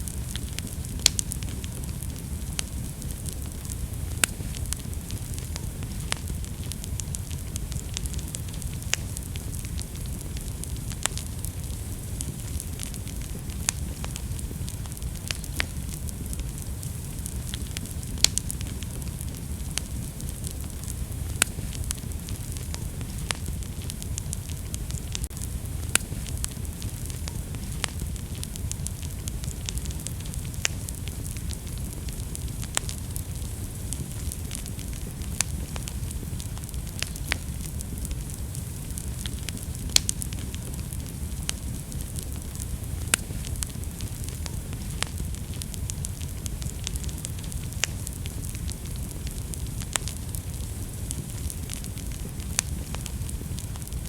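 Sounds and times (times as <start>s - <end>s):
fire crackling and popping: 0.0s - 54.0s
wood fire burning: 0.0s - 54.0s.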